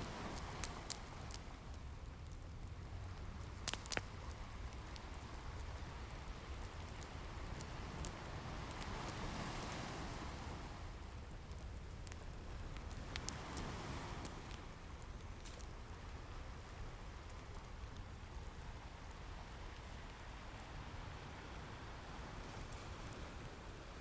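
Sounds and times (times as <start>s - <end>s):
wood fire crackling: 0.0s - 20.7s
ocean waves rumbling: 7.2s - 10.8s.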